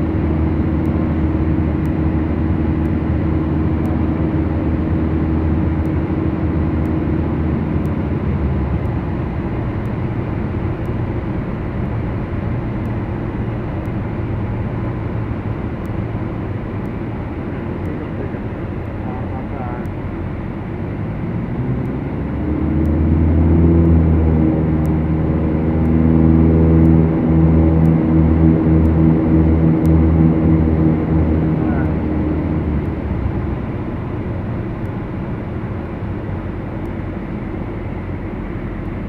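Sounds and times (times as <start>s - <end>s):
aircraft engines droning: 0.0s - 39.0s.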